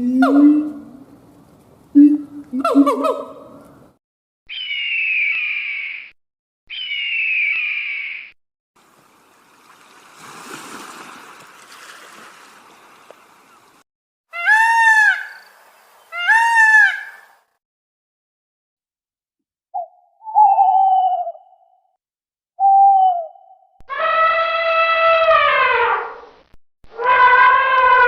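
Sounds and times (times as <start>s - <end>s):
harsh animal cries: 23.9s - 26.2s, 26.9s - 28.0s.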